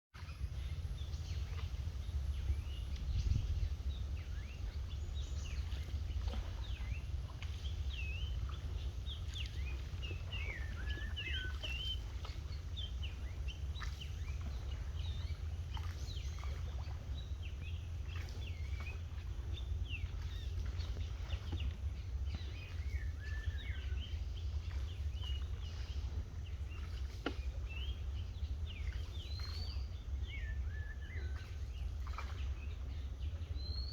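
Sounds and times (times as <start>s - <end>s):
steady low rumble: 0.2s - 33.9s
small birds chirping: 0.3s - 33.9s.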